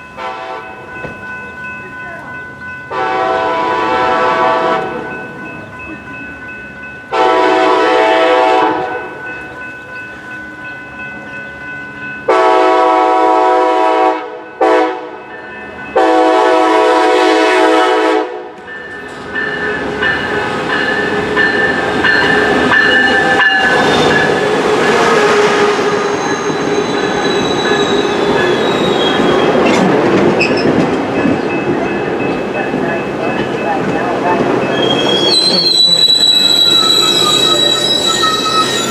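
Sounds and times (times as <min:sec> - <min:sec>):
train horn blasts: 0:00.2 - 0:00.8, 0:02.9 - 0:05.0, 0:07.1 - 0:09.1, 0:12.3 - 0:15.2, 0:16.0 - 0:18.6, 0:23.7 - 0:26.4
train wheels running over rails: 0:18.6 - 0:38.9.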